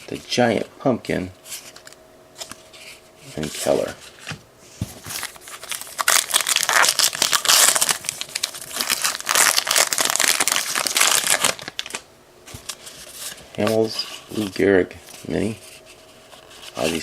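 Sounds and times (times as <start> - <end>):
foil wrapper crinkling and tearing: 5.1 - 12.0.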